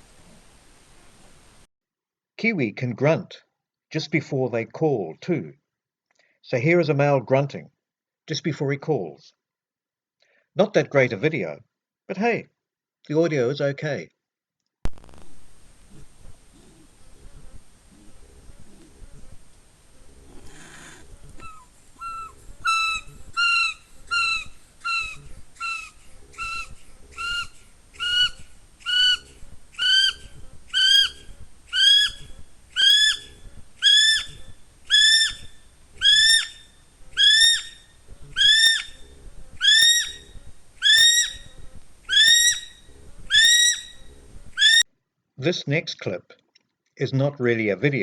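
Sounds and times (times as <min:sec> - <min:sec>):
kiwi shrill rising whistles: 0:21.4 - 0:39.0, 0:39.6 - 0:41.5, 0:42.1 - 0:44.8.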